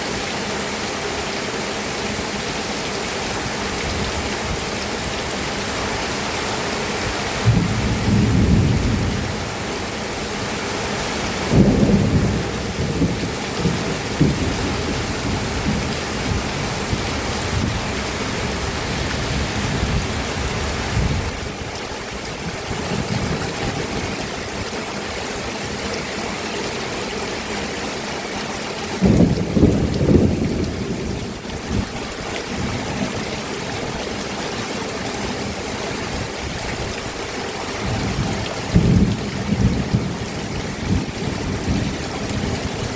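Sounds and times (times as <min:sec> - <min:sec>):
heavy rain: 0:00.0 - 0:42.9
thunder rumbling: 0:07.4 - 0:09.7, 0:11.4 - 0:21.8, 0:29.0 - 0:33.2, 0:37.8 - 0:42.9.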